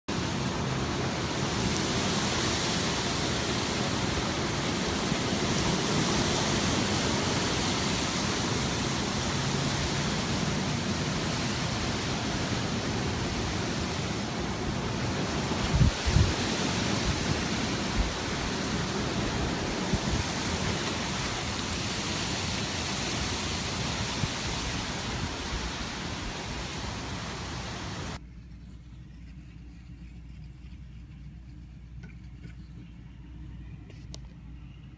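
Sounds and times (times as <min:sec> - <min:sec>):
strong gusty wind: 0:00.1 - 0:28.2
wind buffeting thumps: 0:11.2 - 0:26.7.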